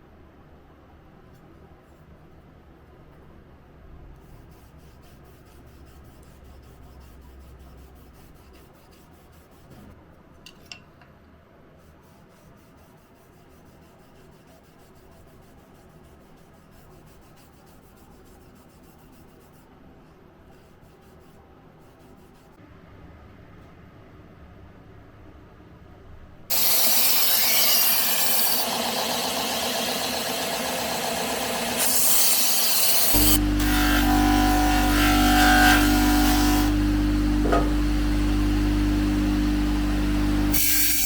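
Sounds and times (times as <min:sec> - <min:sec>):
hand filing or sanding: 0:04.3 - 0:09.8, 0:11.8 - 0:19.7.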